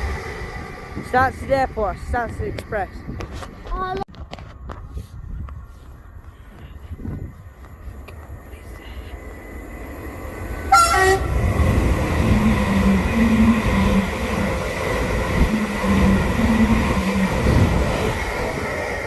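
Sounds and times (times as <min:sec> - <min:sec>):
electric train rumbling: 0:00.0 - 0:04.1, 0:06.9 - 0:19.0
train wheel noise: 0:00.0 - 0:04.1, 0:07.2 - 0:19.0
two-tone train horn: 0:10.7 - 0:11.4.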